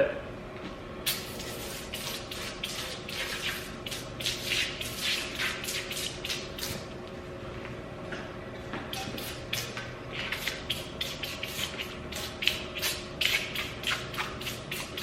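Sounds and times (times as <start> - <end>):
spray can hissing squirts: 1.1 - 6.8.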